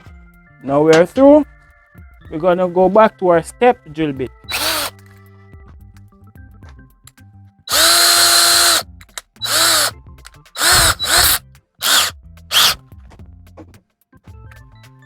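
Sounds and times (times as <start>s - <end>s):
power drill motor whine: 4.5s - 4.9s, 7.7s - 8.8s, 9.4s - 9.9s, 10.6s - 12.8s.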